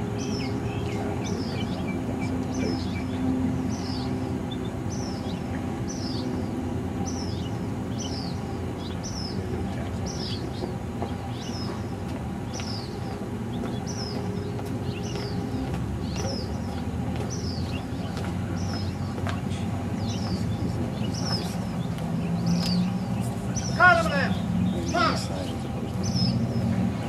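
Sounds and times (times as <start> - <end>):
bird chirping: 0.0 - 27.0
steady low hum: 0.0 - 27.0.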